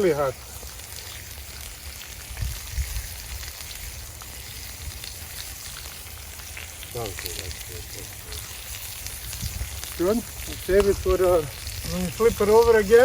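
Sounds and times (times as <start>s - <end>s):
burger patties sizzling in oil: 0.0s - 13.0s.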